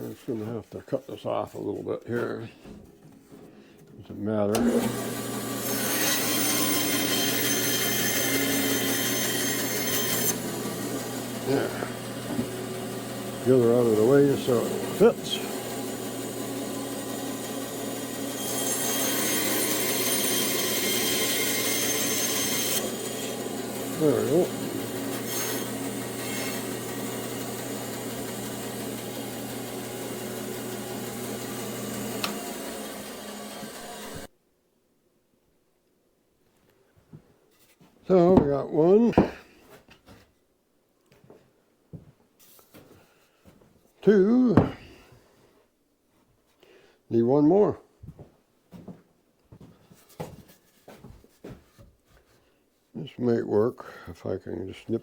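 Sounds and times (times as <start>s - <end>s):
bandsaw cutting wood: 3.3s - 34.3s.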